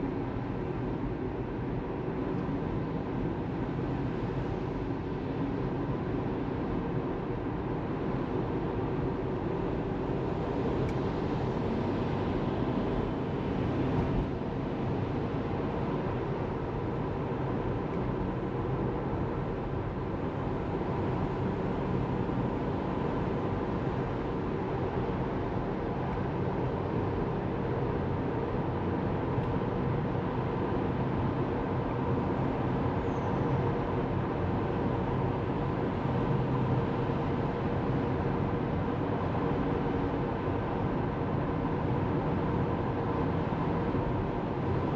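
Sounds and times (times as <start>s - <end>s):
car road and tyre noise: 0.1s - 44.9s.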